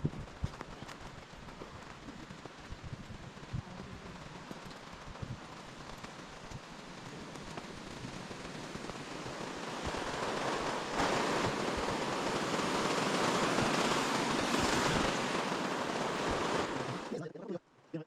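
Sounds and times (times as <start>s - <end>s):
rushing river water: 6.9s - 17.2s.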